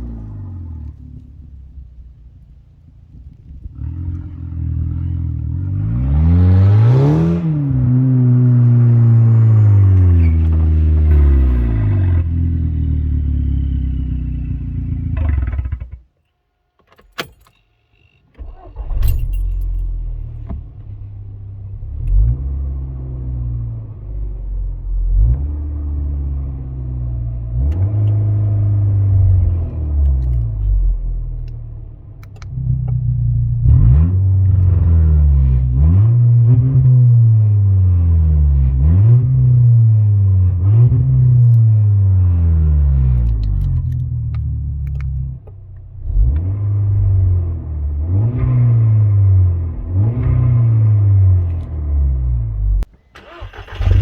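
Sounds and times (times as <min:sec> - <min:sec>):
car engine revving: 0:00.0 - 0:16.0, 0:18.4 - 0:54.0
clicks: 0:29.6 - 0:33.0, 0:43.2 - 0:46.5.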